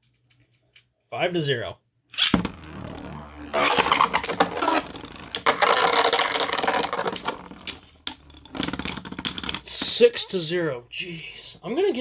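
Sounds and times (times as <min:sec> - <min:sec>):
spinning tops grinding whir: 0:02.4 - 0:08.9.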